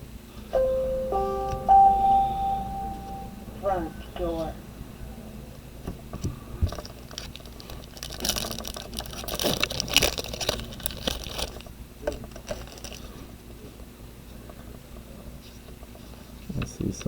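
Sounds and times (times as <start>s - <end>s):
steady low hum: 0.6s - 7.5s
cards and packs rustling: 6.7s - 13.2s.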